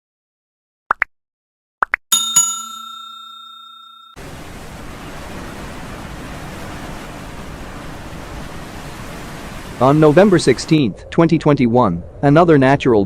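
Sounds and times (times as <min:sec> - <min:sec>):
bell-like chime ringing: 0:02.1 - 0:04.2
steady rushing noise: 0:04.2 - 0:11.0.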